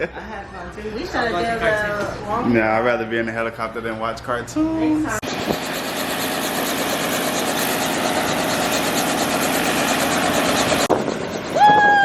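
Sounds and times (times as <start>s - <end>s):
helicopter engine and rotor: 5.2s - 12.0s.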